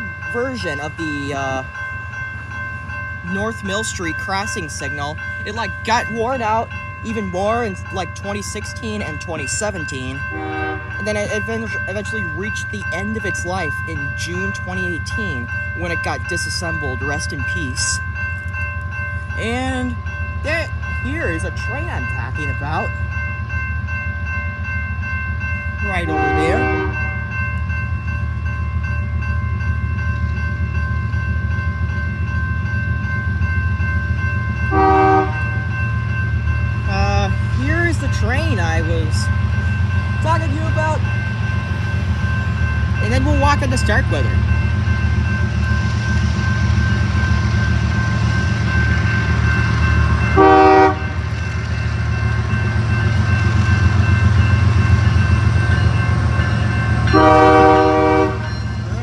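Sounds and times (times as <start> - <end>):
diesel locomotive rumble: 0.0 - 59.0
train horn blast: 10.3 - 11.0, 26.1 - 27.0, 34.7 - 35.4, 50.4 - 51.2, 57.1 - 58.5.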